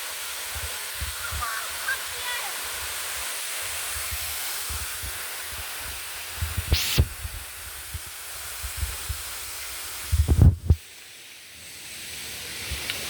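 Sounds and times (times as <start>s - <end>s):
waterfall rushing: 0.0s - 10.2s
wind thumps on microphone: 0.5s - 1.5s, 3.9s - 9.4s, 10.0s - 10.8s.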